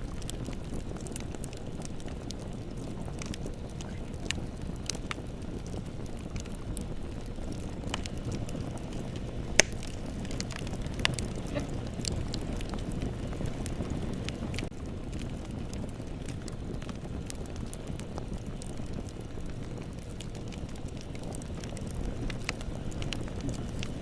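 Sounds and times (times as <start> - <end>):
bonfire rumble: 0.0 - 24.0
fire crackles and pops: 0.0 - 24.0
loud sharp pop: 9.6 - 9.9.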